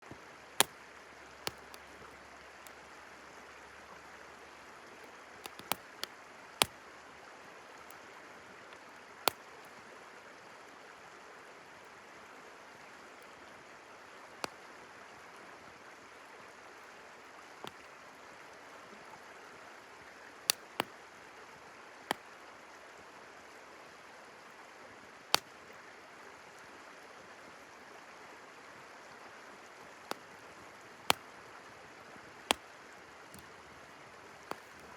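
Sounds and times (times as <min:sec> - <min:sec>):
river flowing: 0:00.1 - 0:34.9
campfire crackling and popping: 0:01.4 - 0:02.8, 0:05.4 - 0:06.8, 0:17.6 - 0:17.9, 0:20.5 - 0:20.9, 0:34.4 - 0:34.9.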